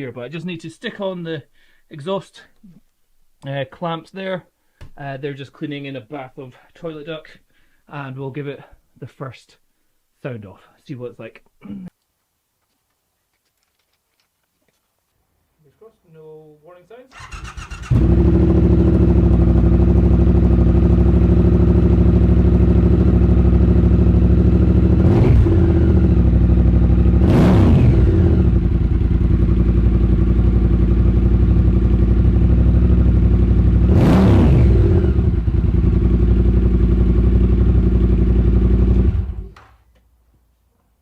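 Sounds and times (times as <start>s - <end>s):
motorcycle engine idling and revving: 17.2s - 39.6s.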